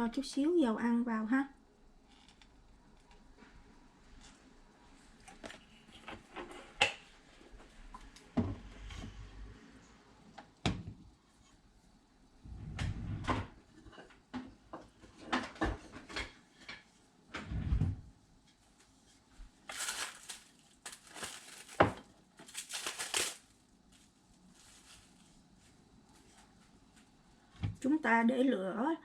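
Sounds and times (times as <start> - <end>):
rustling or crinkling: 18.5 - 27.3.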